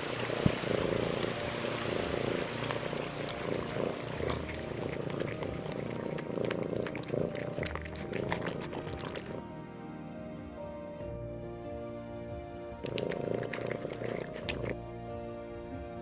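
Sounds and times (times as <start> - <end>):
animal purring rumble: 0.0 - 9.4, 12.8 - 14.8.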